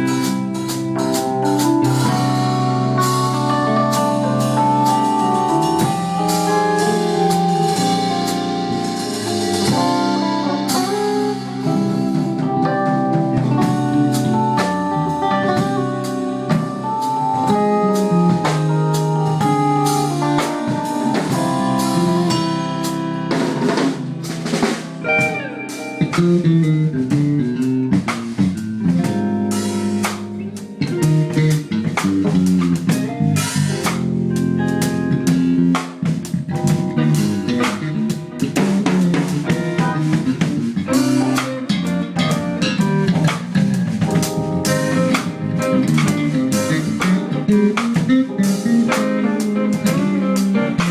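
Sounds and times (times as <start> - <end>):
bass guitar: 0.0 - 50.9
drum kit beat: 0.0 - 50.9
electric guitar lead: 0.0 - 50.9.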